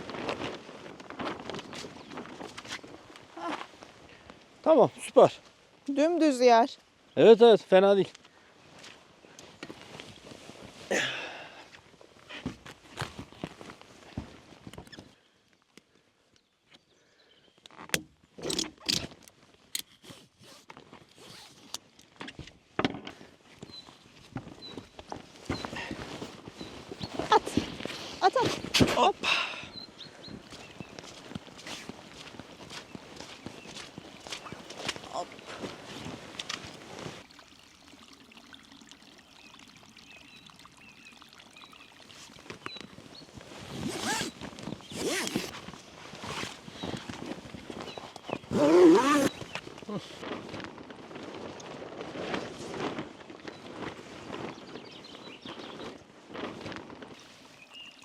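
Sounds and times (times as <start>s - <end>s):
zipper pulled: 17.9s - 19.1s, 19.8s - 21.8s, 43.7s - 46.6s, 48.4s - 49.5s
gear knocking and scraping: 17.9s - 19.2s
faint trickling water: 32.0s - 43.8s, 57.2s - 58.0s.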